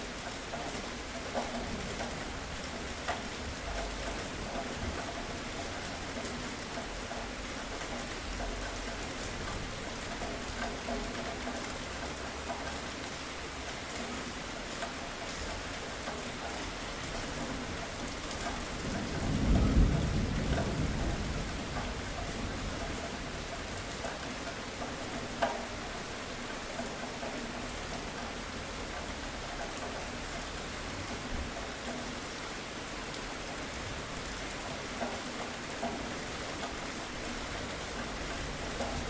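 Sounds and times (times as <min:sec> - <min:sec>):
steady rainfall: 0:00.0 - 0:39.0
raindrop tick: 0:00.1 - 0:39.0
thunder rumbling: 0:18.6 - 0:23.2.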